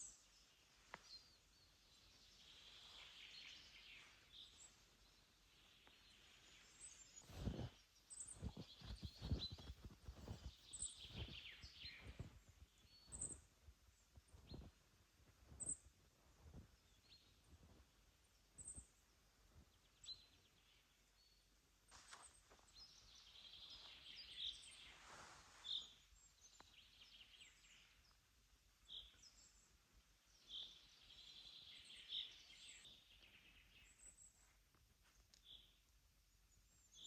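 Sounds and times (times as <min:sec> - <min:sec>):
songbird chirps and trills: 0:00.0 - 0:37.0.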